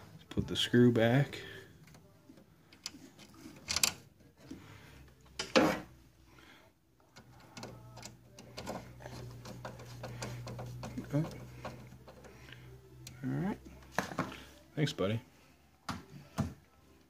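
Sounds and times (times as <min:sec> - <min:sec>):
low steady hum: 0:00.0 - 0:17.0
screw clicking and ticking: 0:07.2 - 0:12.3.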